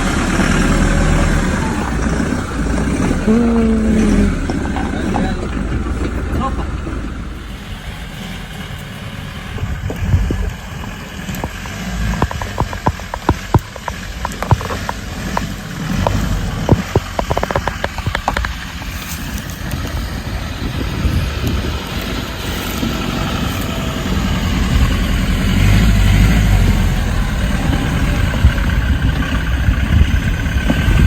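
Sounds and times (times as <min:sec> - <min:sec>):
truck engine running: 0:00.0 - 0:31.0
sharp clicks and knocks: 0:09.8 - 0:19.9.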